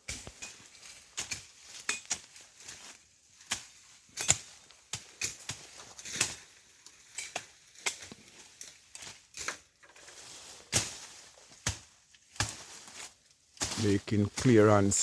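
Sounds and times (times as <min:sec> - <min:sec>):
brush being chopped: 0:00.1 - 0:06.4, 0:10.6 - 0:14.6.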